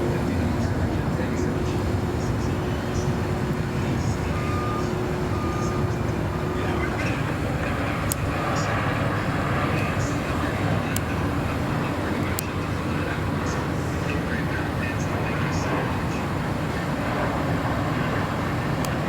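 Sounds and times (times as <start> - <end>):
traffic rumble: 0.0 - 19.0
short beeps: 4.2 - 6.8.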